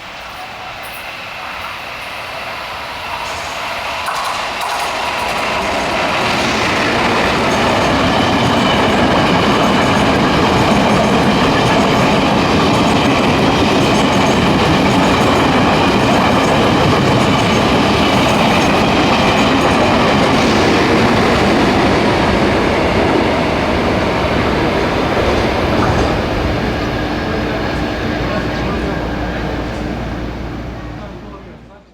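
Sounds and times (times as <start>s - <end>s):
train wheels rushing on rail: 0.0s - 31.9s.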